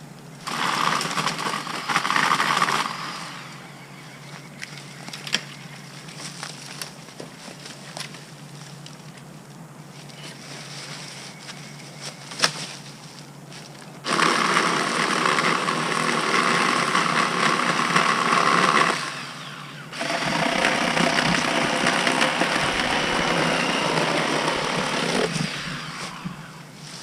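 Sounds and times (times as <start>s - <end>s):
battery chainsaw running: 0.4s - 5.5s, 14.0s - 26.8s.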